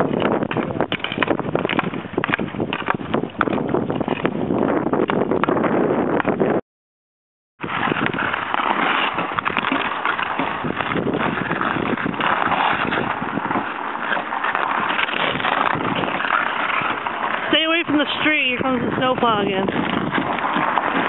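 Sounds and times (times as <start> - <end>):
ice crust crunching underfoot: 7.6 - 21.0.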